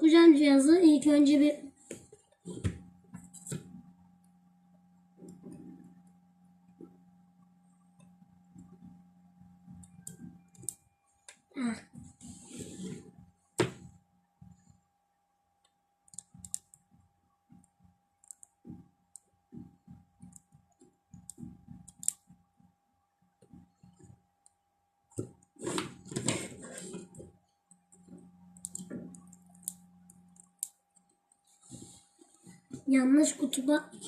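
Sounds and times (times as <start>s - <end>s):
low hum: 0.0s - 24.6s, 25.4s - 34.0s
faint steady tone: 1.6s - 25.6s
clicks and taps of wires: 15.6s - 22.4s, 27.1s - 31.8s.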